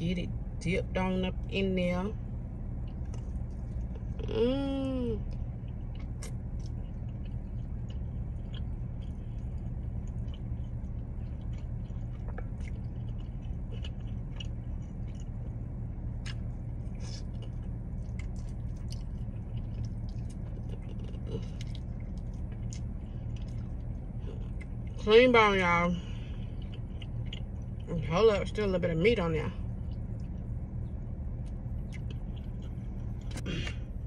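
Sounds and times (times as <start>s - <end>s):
steady low hum: 0.0s - 34.0s
chewing and biting: 2.8s - 4.2s, 5.2s - 25.0s, 26.3s - 27.9s, 29.6s - 34.0s.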